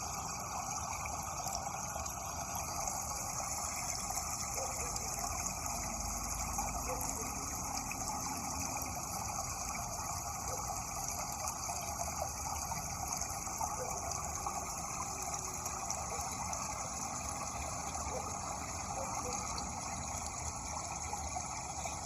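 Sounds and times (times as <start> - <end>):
rushing water: 0.0 - 22.0.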